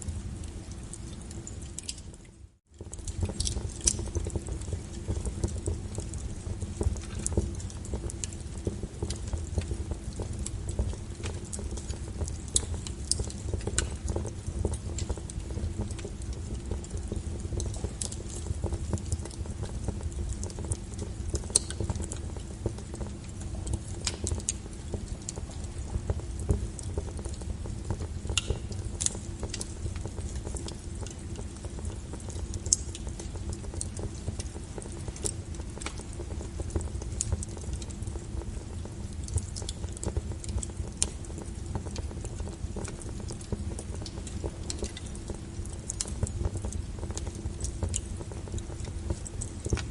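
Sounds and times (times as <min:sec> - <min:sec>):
wood fire crackling: 0:00.0 - 0:49.9.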